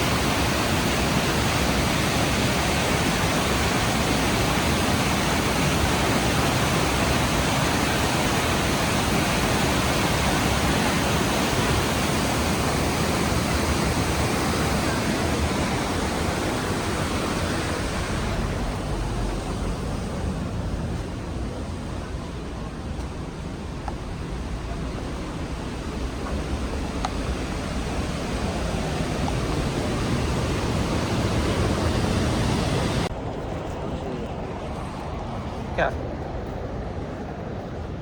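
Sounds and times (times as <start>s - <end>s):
waterfall roaring: 0.0s - 37.8s.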